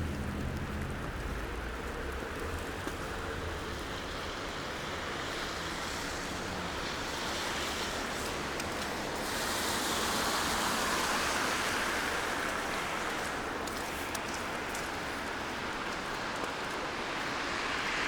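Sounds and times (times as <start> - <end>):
hiss of wet street: 0.0 - 18.0
tyres rushing on wet road: 0.0 - 18.0.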